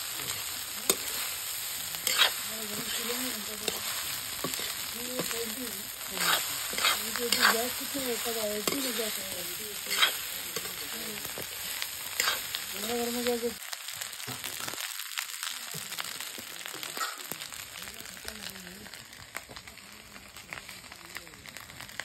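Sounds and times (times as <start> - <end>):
spatula scraping a pan: 0.0 - 13.3
rice sizzling in a pan: 0.0 - 22.0.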